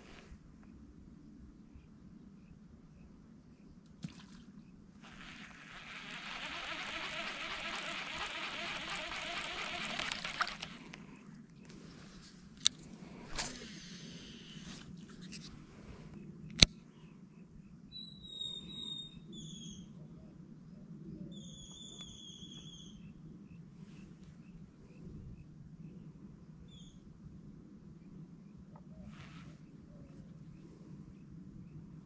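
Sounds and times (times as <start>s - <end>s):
steady low hum: 4.9s - 17.9s.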